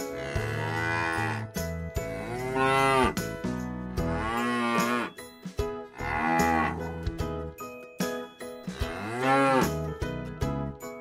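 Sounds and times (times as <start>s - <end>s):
cattle mooing: 0.1s - 1.5s, 2.1s - 3.2s, 4.0s - 5.2s, 6.0s - 6.9s, 8.8s - 9.8s.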